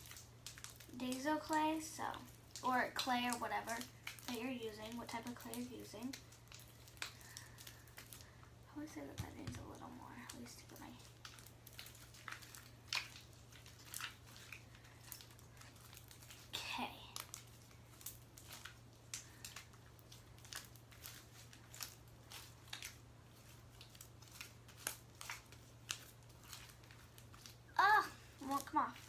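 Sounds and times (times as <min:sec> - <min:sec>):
slime kneaded by hand: 0:00.0 - 0:29.0.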